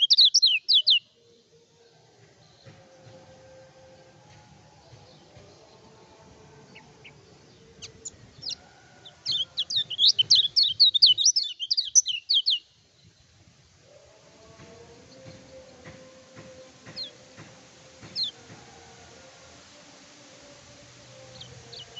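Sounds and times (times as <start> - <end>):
bird chirping: 0.0 - 3.4, 4.9 - 13.4, 15.1 - 18.6, 21.1 - 21.9.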